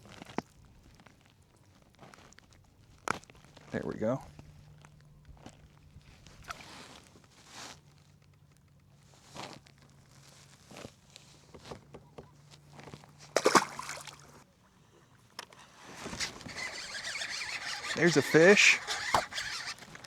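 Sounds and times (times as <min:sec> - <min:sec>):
fishing gear rustling and knocking: 0:09.9 - 0:20.0.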